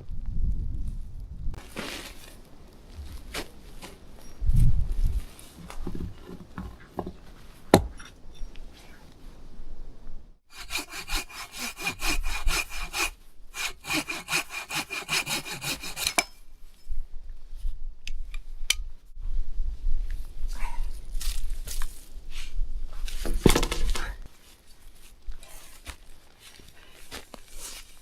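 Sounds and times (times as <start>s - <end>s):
hand saw cutting wood: 10.5s - 16.3s.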